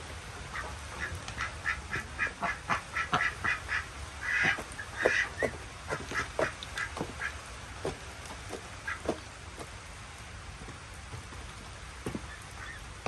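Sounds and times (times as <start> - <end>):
steady rain: 0.0 - 13.0
ducks quacking: 0.4 - 9.2, 12.2 - 12.9.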